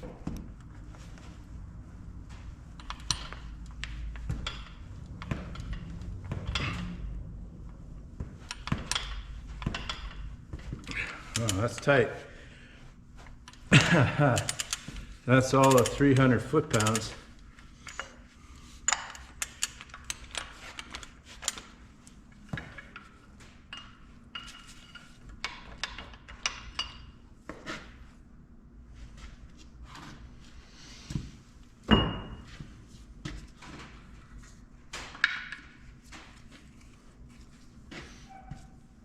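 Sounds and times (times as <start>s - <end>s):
metal tools clinking: 11.3s - 11.9s, 13.7s - 17.2s.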